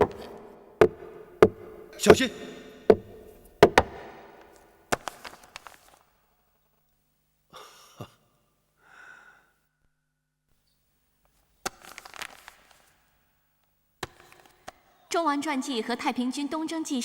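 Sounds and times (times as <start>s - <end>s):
knocks and clicks: 0.0s - 4.2s
soft breathy sound: 8.8s - 9.7s.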